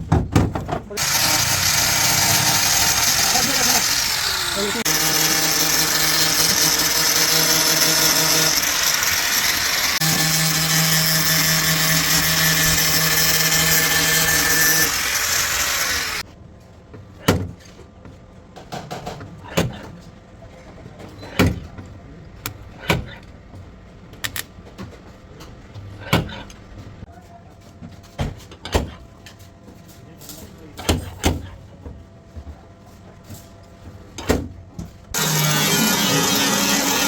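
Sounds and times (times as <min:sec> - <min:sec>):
power tool grinding metal: 0:01.0 - 0:16.2, 0:35.2 - 0:37.0.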